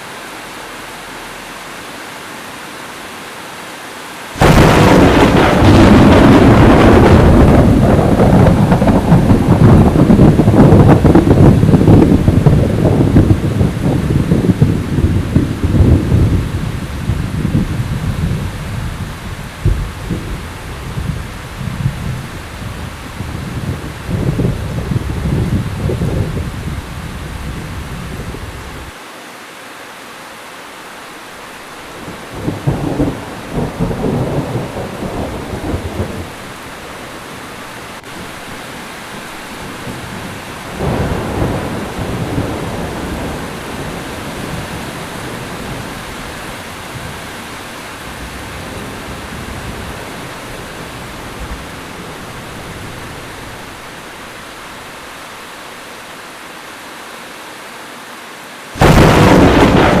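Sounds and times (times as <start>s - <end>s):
heavy rain: 0.0s - 60.0s
loud thunder crack: 4.4s - 16.4s, 19.6s - 22.2s, 32.3s - 36.4s, 39.9s - 45.9s, 58.8s - 60.0s
thunder rumbling: 4.4s - 28.9s, 31.9s - 38.6s, 39.2s - 55.1s, 58.8s - 60.0s.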